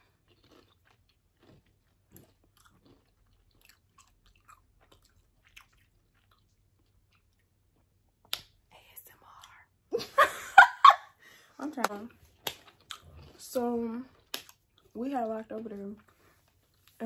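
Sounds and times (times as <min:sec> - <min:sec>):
chewing crunchy chips: 0:00.0 - 0:07.9, 0:12.3 - 0:17.0.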